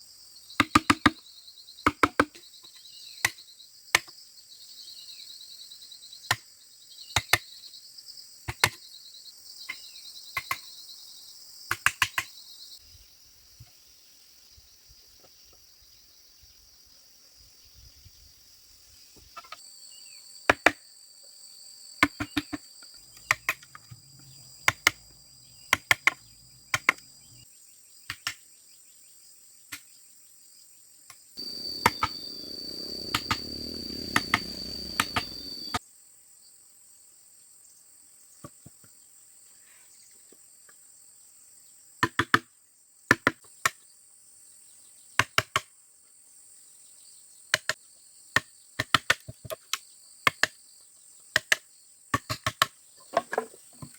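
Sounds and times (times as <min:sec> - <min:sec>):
crickets trilling: 0:00.1 - 0:29.3, 0:29.9 - 0:36.6
rushing noise: 0:31.4 - 0:35.8.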